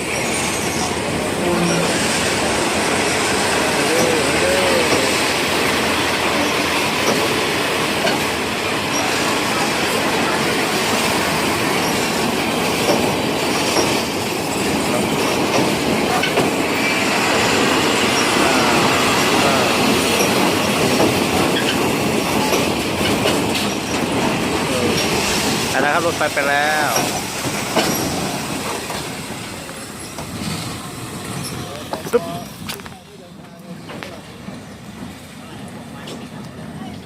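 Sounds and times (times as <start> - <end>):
train wheel squeal: 0.0 - 5.3, 6.3 - 7.4, 8.8 - 24.2, 26.7 - 28.9, 29.8 - 32.6
train wheels rumbling on rails: 0.0 - 37.0.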